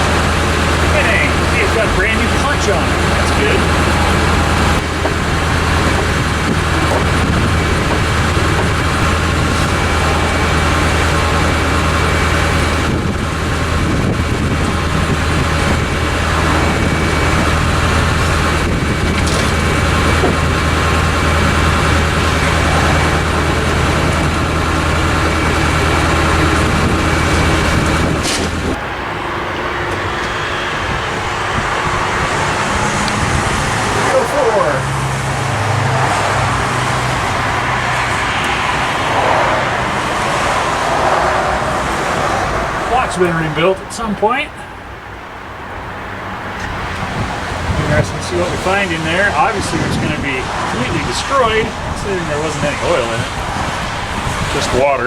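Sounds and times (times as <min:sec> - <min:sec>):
tractor engine idling: 0:00.0 - 0:55.0.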